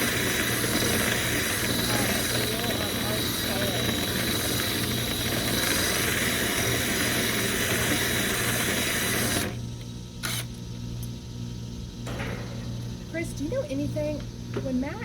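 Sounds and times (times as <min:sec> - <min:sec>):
drill spinning brush in duct: 0:00.0 - 0:10.5.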